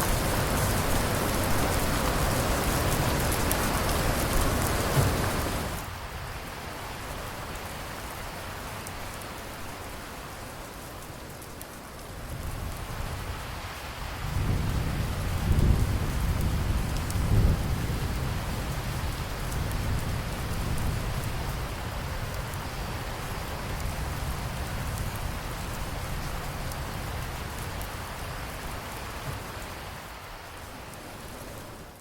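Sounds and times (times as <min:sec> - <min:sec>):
thunder rumbling: 0:00.0 - 0:05.9, 0:14.2 - 0:27.9
steady rain falling: 0:00.0 - 0:32.0.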